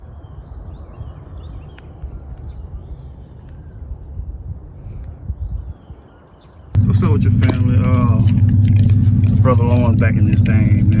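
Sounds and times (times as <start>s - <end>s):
high-pitched insect chorus: 0.0s - 11.0s
rough low rumble: 6.8s - 11.0s.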